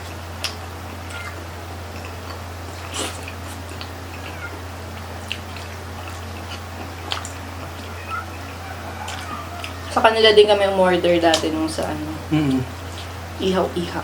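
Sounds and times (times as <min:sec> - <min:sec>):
people chewing: 0:00.0 - 0:13.3
low electrical hum: 0:00.0 - 0:14.0
wet mouth clicks and smacks: 0:05.2 - 0:07.8.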